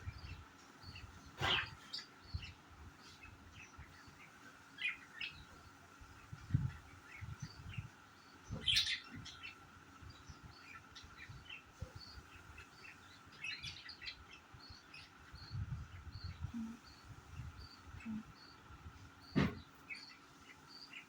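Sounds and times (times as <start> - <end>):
budgerigars chirping: 0.1 - 18.6.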